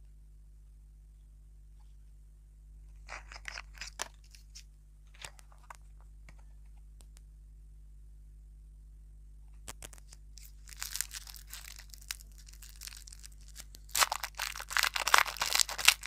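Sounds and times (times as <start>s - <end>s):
plastic packet crinkling: 3.0s - 4.6s, 9.7s - 16.0s.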